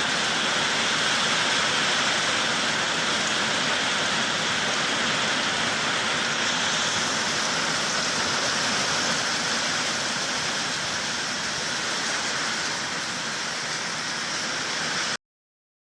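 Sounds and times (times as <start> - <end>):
heavy rain pouring: 0.0 - 15.2.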